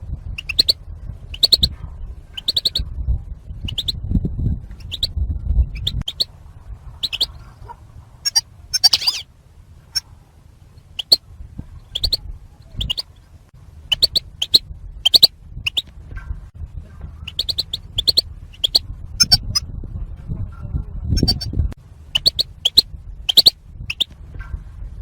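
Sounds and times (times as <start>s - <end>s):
goldfinch chirps: 0.4s - 1.7s, 2.4s - 2.8s, 3.6s - 4.0s, 4.8s - 5.2s, 5.8s - 6.3s, 6.9s - 9.2s, 10.8s - 11.2s, 11.9s - 13.2s, 13.9s - 15.9s, 17.2s - 19.6s, 21.2s - 21.5s, 22.1s - 24.2s.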